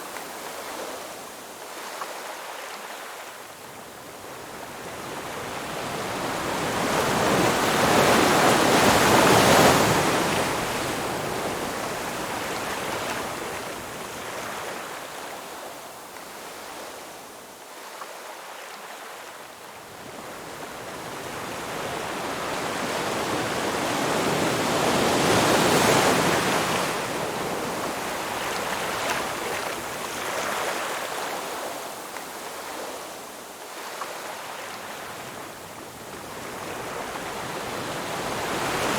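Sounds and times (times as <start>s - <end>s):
waves breaking on shore: 21.0s - 38.9s.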